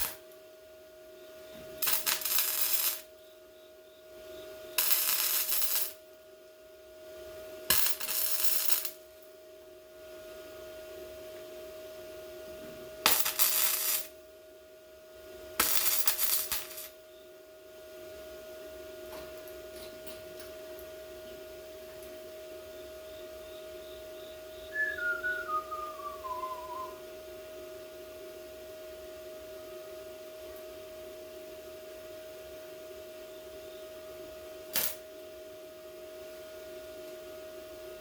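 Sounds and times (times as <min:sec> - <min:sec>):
welder crackling and hissing: 0:00.0 - 0:00.3, 0:01.8 - 0:03.1, 0:04.8 - 0:06.0, 0:07.8 - 0:08.9, 0:13.0 - 0:14.2, 0:15.6 - 0:17.0
welder hum: 0:01.8 - 0:03.1.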